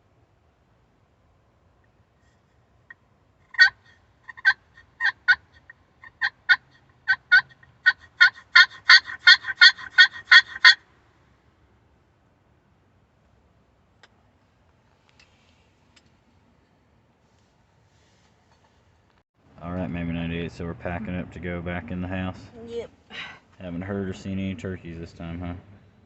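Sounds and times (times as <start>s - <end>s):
turkey box call rattling: 2.9s - 10.8s.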